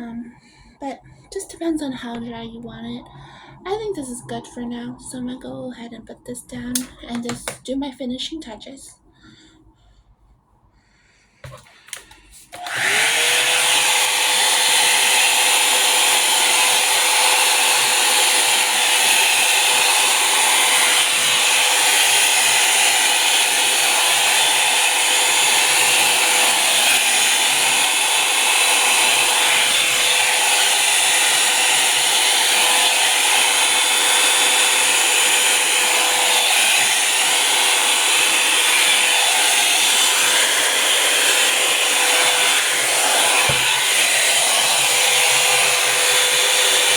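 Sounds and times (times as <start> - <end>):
hot-air brush dryer running: 6.8 - 7.6, 11.4 - 46.9.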